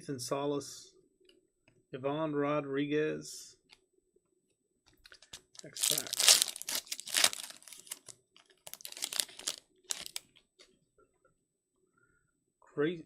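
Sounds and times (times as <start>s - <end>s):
plastic wrapper tearing and crinkling: 5.0s - 10.3s.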